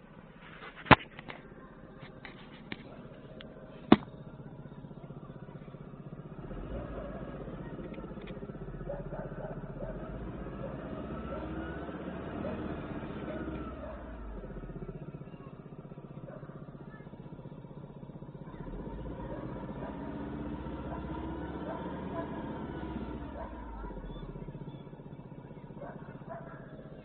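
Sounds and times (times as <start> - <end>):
van engine low rumble: 0.0 - 27.0
irregular ticking rattle: 1.2 - 27.0
sharp knocks: 3.9 - 4.1.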